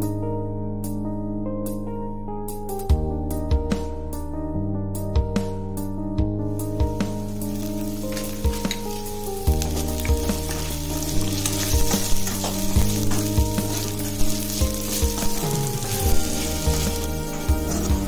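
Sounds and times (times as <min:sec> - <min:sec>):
background music: 0:00.0 - 0:18.0
potatoes sizzling in oil: 0:06.8 - 0:18.0
spatula scraping a pan: 0:07.4 - 0:18.0.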